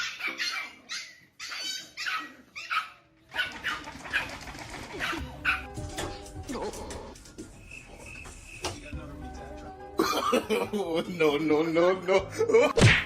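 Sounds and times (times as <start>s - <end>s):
dog barking: 0.0s - 4.4s, 5.0s - 5.7s.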